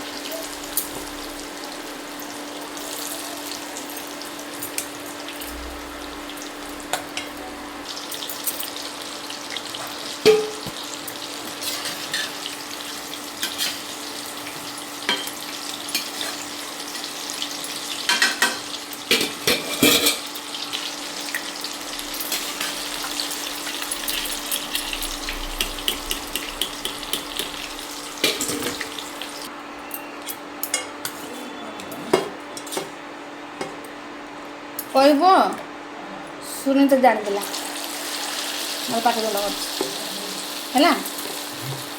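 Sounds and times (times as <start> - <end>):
food sizzling in hot oil: 0.0 - 29.5, 37.2 - 41.9
spoon knocking and scraping pan: 9.8 - 10.8, 25.5 - 29.0.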